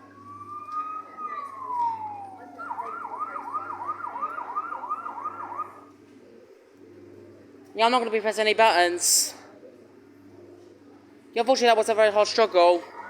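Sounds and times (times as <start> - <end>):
electronic siren wailing and yelping: 0.0 - 5.9, 12.8 - 13.0.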